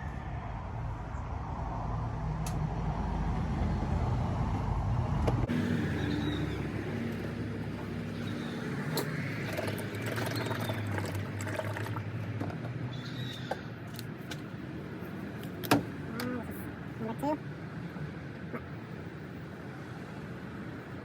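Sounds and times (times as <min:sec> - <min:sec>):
oil gurgling from bottle: 0:07.8 - 0:12.7.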